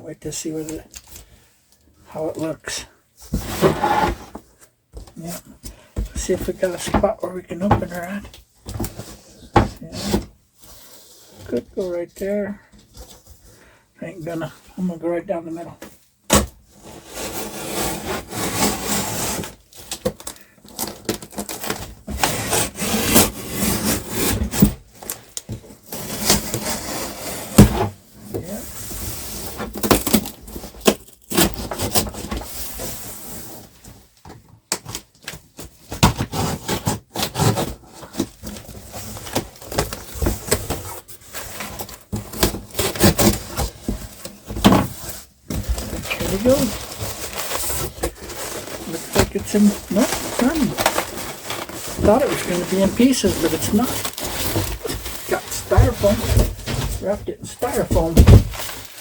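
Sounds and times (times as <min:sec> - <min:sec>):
box cutter scraping cardboard: 0:03.3 - 0:04.4, 0:16.3 - 0:24.8, 0:25.8 - 0:33.7, 0:35.8 - 0:59.0.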